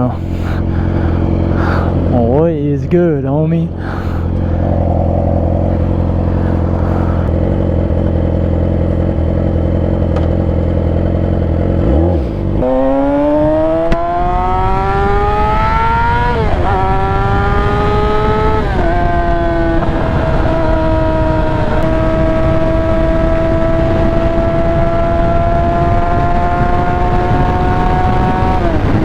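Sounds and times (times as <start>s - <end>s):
motorcycle engine revving: 0.0s - 2.4s, 3.7s - 29.0s.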